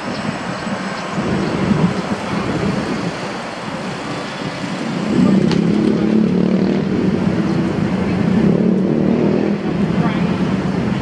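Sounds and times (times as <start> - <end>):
street traffic noise: 0.0 - 11.0
vehicle engine running: 3.8 - 11.0.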